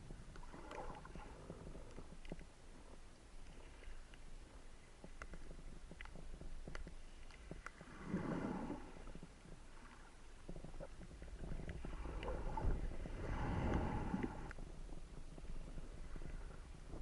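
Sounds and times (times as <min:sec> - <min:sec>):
sharp clicks and crackles: 0:00.2 - 0:02.6, 0:05.0 - 0:07.9
water rushing underwater: 0:07.8 - 0:09.2, 0:11.8 - 0:14.5.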